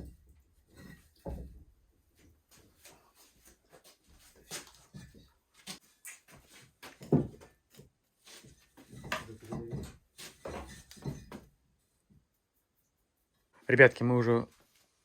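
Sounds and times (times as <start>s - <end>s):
bricks knocking and clunking: 6.8s - 11.6s.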